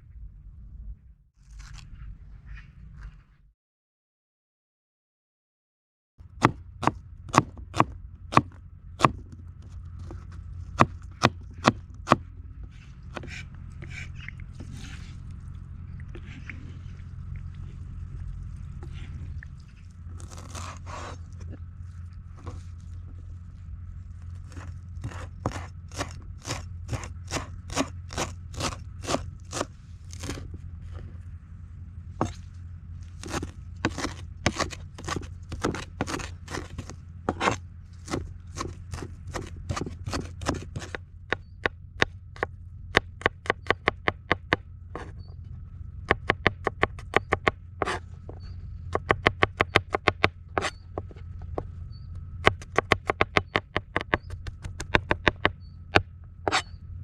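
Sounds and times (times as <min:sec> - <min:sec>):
knife chopping on cutting board: 0:24.5 - 0:30.4, 0:33.2 - 0:41.0.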